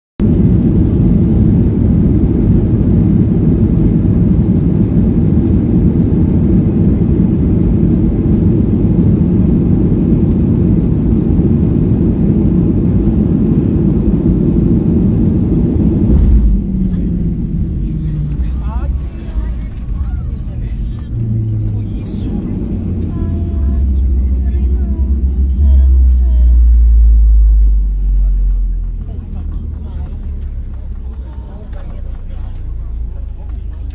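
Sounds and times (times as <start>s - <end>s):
jet engines roaring: 0.2s - 33.9s
low thump: 15.9s - 19.0s.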